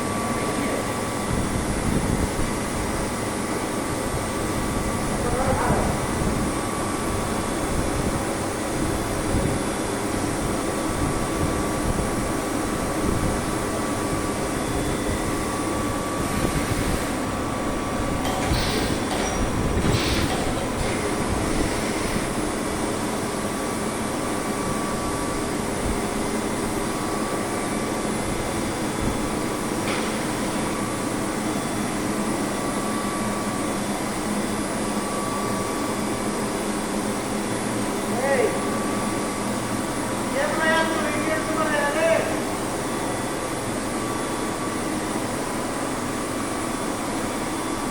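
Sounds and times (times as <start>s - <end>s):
milling machine running: 5.9s - 41.2s.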